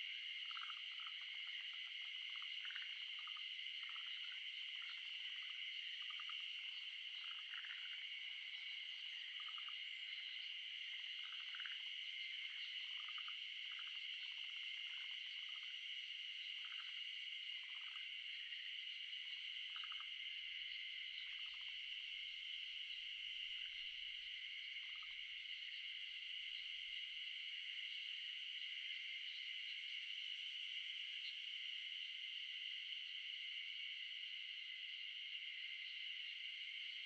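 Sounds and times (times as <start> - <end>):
high-pitched frog and insect drone: 0.0 - 37.0.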